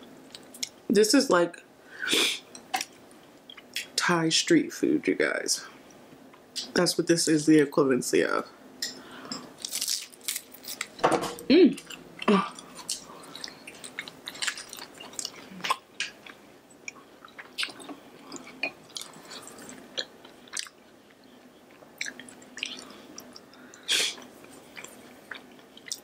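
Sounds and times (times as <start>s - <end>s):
small crunches: 9.6s - 11.0s, 12.7s - 16.1s
chewing fried food: 11.8s - 26.0s.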